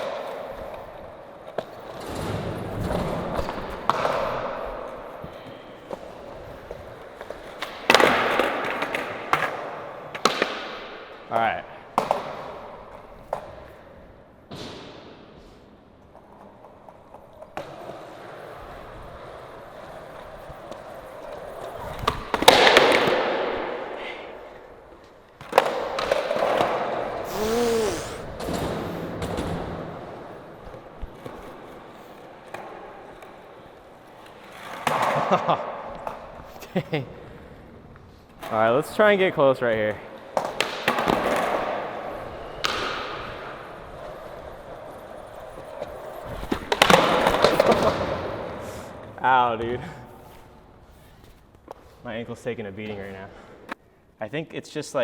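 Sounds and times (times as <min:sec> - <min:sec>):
skateboard slapping the ground: 0:00.0 - 0:11.2, 0:11.9 - 0:13.9, 0:16.1 - 0:24.0, 0:25.1 - 0:27.3, 0:28.2 - 0:36.5, 0:40.1 - 0:48.6
skateboard wheels rolling: 0:00.0 - 0:49.2.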